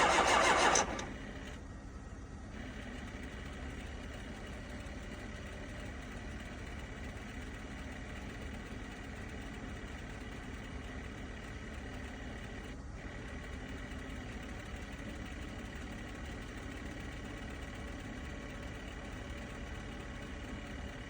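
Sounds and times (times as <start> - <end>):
diesel engine cold start attempt: 0.0 - 1.6.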